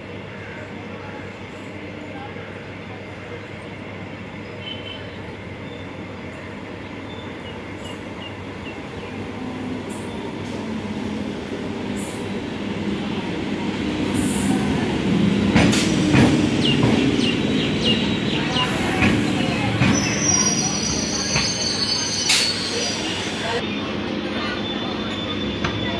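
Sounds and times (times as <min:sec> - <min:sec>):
electric train pulling in: 0:05.2 - 0:25.9
rail-joint clicks: 0:15.5 - 0:23.6
high wheel squeals: 0:18.4 - 0:23.6.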